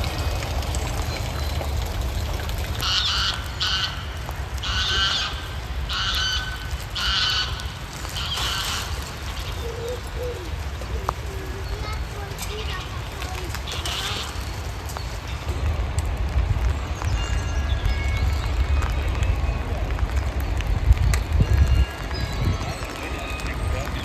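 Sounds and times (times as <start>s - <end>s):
steady low rumble: 0.0s - 24.0s
bird calling: 2.8s - 15.4s.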